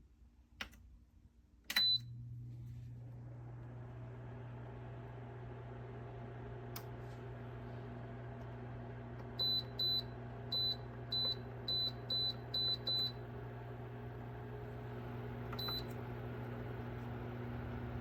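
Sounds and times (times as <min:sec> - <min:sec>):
space heater control beeps: 0:01.7 - 0:02.1, 0:09.4 - 0:13.2, 0:15.5 - 0:16.0.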